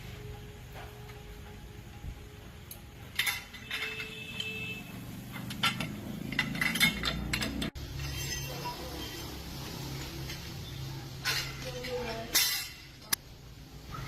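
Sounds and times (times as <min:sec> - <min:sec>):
metal objects clinking: 0:03.0 - 0:13.2.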